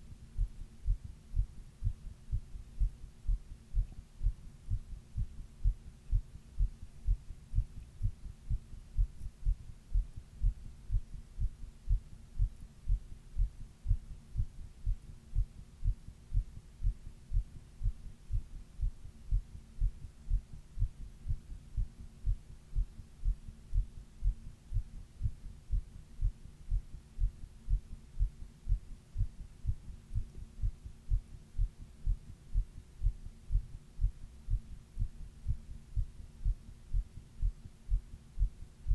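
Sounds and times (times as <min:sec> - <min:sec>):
faint steady hum: 0:00.0 - 0:38.9
heartbeat thumping: 0:00.0 - 0:38.9.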